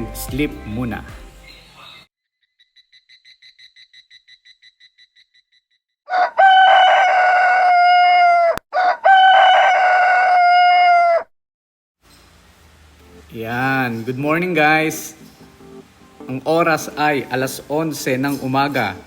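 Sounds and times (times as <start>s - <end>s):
rapid high chirps: 1.4s - 5.9s
rooster crowing: 6.1s - 11.3s.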